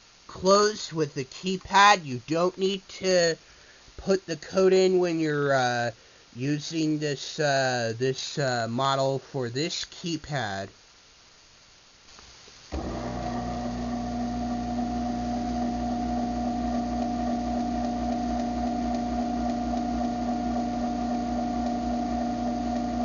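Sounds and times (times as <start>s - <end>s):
garage door opener motor: 12.7s - 23.0s.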